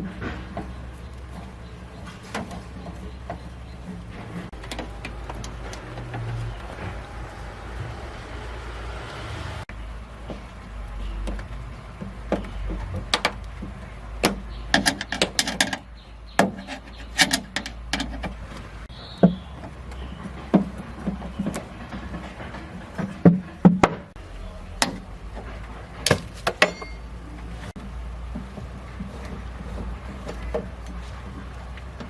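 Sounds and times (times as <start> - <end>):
sharp clicks and knocks: 0.0 - 8.2, 10.2 - 24.2.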